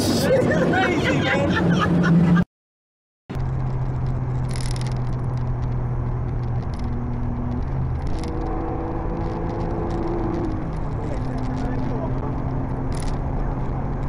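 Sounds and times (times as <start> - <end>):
road and wind noise: 0.0 - 2.5, 3.3 - 14.0
car engine drone: 3.3 - 14.0.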